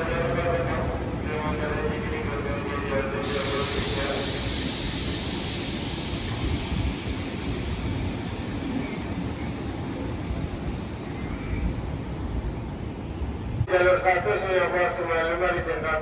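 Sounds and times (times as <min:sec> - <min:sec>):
train high hiss: 0:00.0 - 0:09.6
train wheels rumbling on rail: 0:00.0 - 0:16.0.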